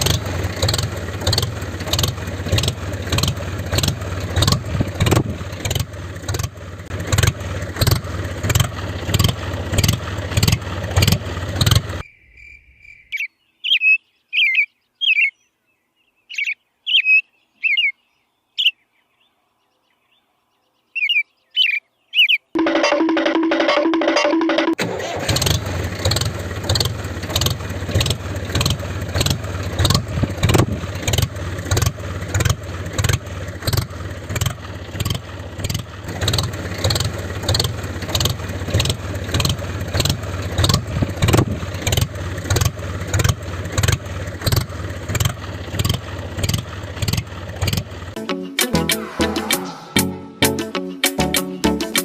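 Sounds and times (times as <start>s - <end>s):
tractor engine thumping: 0.0s - 12.0s, 22.6s - 48.2s.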